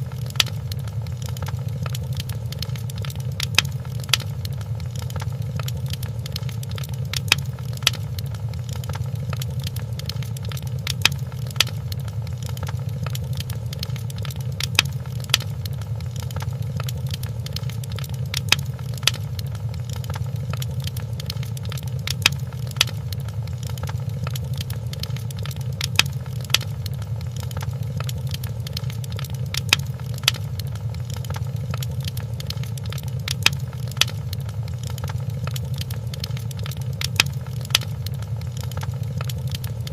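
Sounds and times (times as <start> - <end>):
fire crackling: 0.0 - 39.9.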